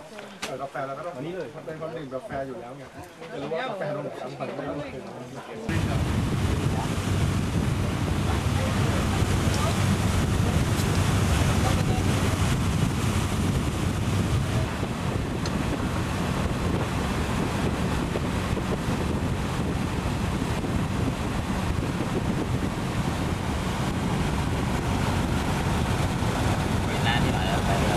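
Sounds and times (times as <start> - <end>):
open water: 5.6 - 27.9
wind on microphone: 5.7 - 27.9.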